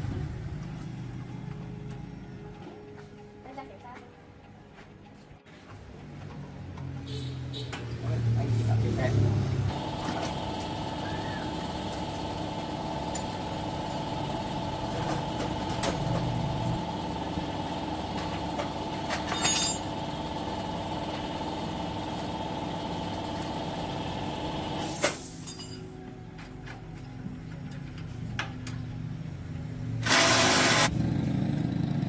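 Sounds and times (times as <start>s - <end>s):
machine humming: 9.7s - 24.8s.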